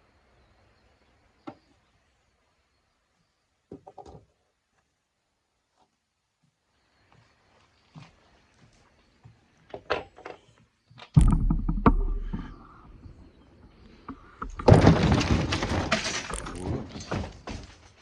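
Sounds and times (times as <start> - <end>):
heavy thunk: 11.2 - 13.1, 14.4 - 17.7
tools and bike parts clanking: 14.4 - 18.0.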